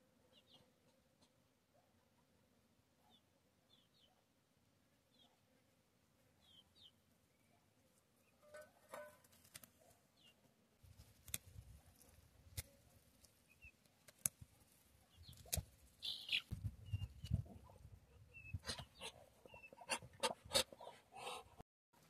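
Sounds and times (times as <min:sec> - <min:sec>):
chicks peeping: 0:15.2 - 0:20.4.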